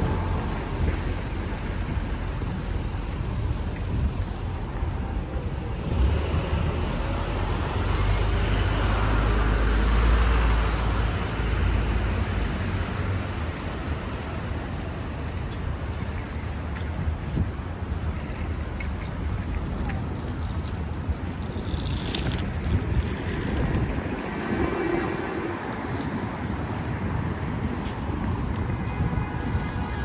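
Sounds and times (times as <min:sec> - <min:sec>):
passing road traffic: 0:00.0 - 0:30.0
large vehicle passing: 0:21.6 - 0:27.1.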